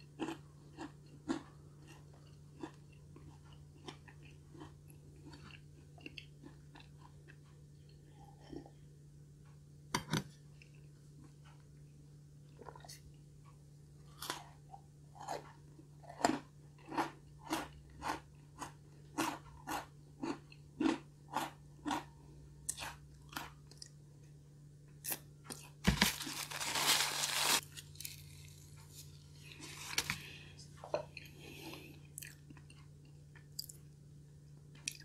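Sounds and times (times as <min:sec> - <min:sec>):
cookie crunching: 0:00.0 - 0:07.4, 0:25.1 - 0:30.4
chewing: 0:00.0 - 0:08.8, 0:14.1 - 0:24.0, 0:28.0 - 0:33.8.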